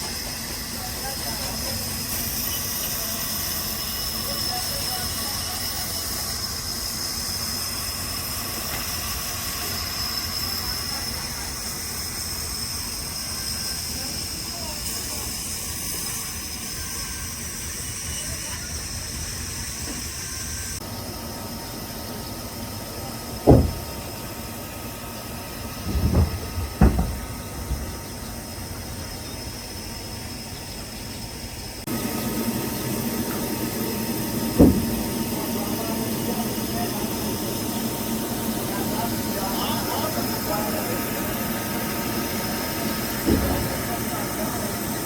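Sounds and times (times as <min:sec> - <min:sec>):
sawmill machinery running: 0:00.0 - 0:45.0
heavy thuds: 0:23.4 - 0:24.0, 0:25.8 - 0:28.0, 0:34.5 - 0:35.2.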